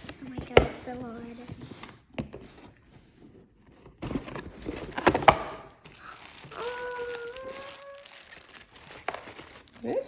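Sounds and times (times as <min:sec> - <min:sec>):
cardboard crackling and rustling: 0:00.0 - 0:10.0
cardboard tearing: 0:03.6 - 0:10.0.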